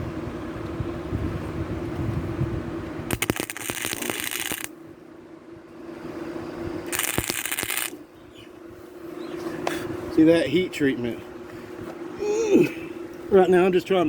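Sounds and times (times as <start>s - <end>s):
steady low hum: 0.0s - 14.0s
welder arc crackling and spitting: 3.1s - 4.7s, 6.9s - 8.0s.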